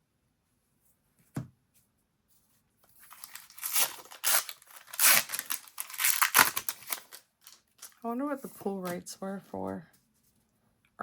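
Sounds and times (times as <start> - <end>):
foil wrapper tearing and crinkling: 3.0 - 8.0.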